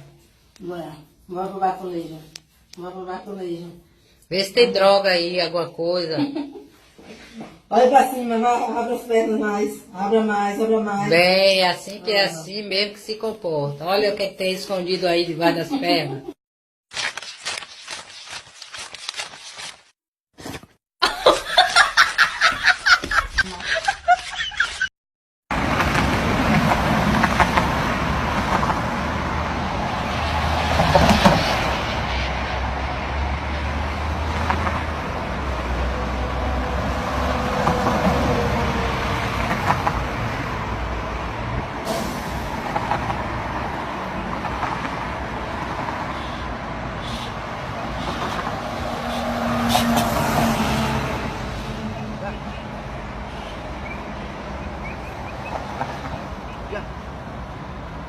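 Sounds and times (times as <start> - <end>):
road vehicle noise: 25.5 - 58.0.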